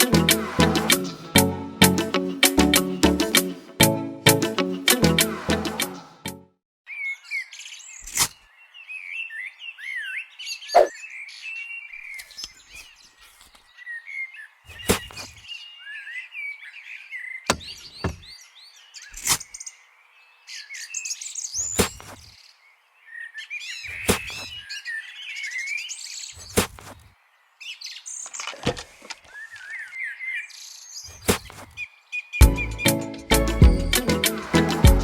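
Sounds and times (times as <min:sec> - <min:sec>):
small birds chirping: 0:06.9 - 0:34.4
sharp clicks and knocks: 0:17.5 - 0:18.2.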